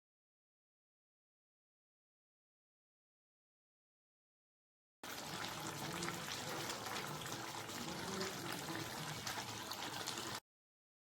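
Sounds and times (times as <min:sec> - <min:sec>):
curry bubbling and crackling in pan: 0:05.0 - 0:10.4.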